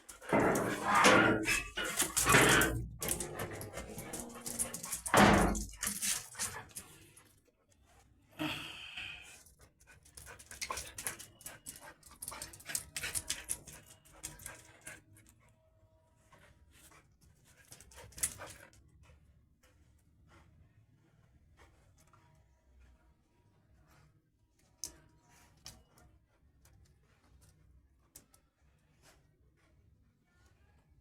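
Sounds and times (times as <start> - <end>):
dog panting: 0.0 - 7.4, 9.4 - 15.6, 16.3 - 22.2.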